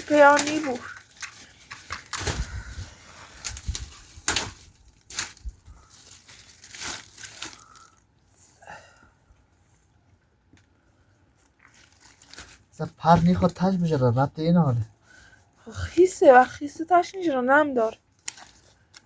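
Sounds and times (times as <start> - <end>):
sticks cracking and snapping: 0.0 - 2.6, 3.4 - 5.8
sticks and brush rustling: 0.0 - 7.9.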